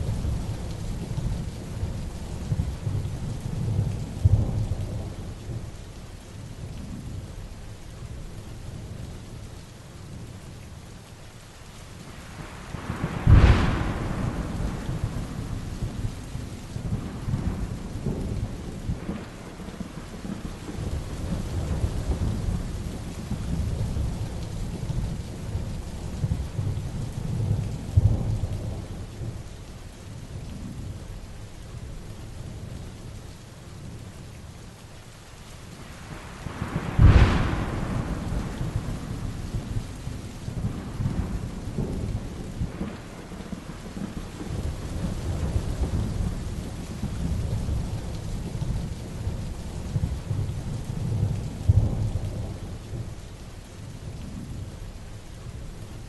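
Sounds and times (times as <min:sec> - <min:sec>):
heavy rain: 0:00.0 - 0:56.0
thunder rumbling: 0:12.2 - 0:29.5, 0:35.9 - 0:53.3
sharp thunderclap: 0:12.7 - 0:24.4, 0:36.4 - 0:48.9.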